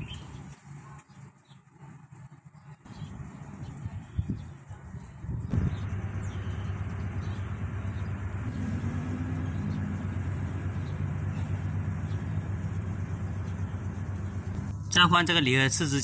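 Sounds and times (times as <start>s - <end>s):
washing machine spinning: 5.5s - 16.0s.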